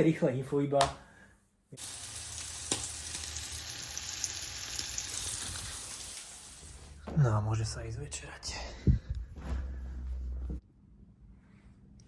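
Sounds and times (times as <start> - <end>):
food sizzling in a pan: 1.8 - 7.0.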